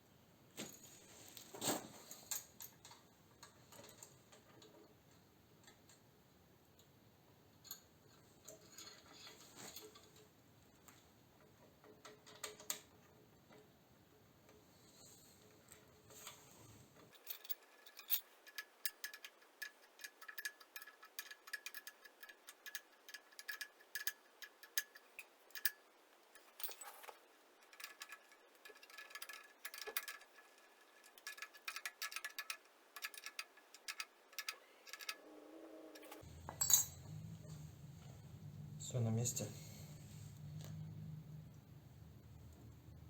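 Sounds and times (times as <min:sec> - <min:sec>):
hand tools tapping metal fittings: 0:17.1 - 0:35.2, 0:36.0 - 0:37.2.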